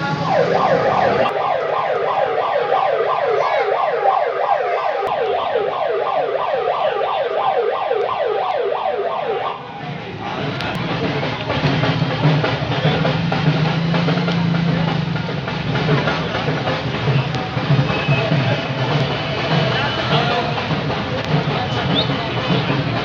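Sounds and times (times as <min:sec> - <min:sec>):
electronic siren yelping: 0:00.0 - 0:09.6.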